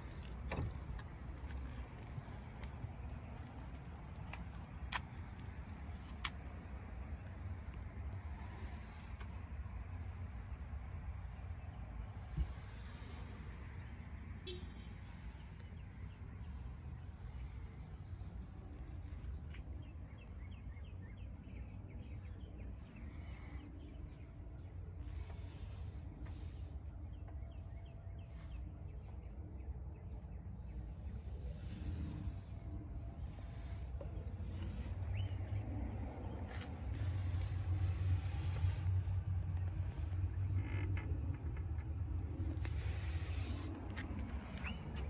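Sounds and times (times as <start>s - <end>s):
low outdoor rumble: 0.0s - 45.0s
hiss: 42.7s - 43.8s.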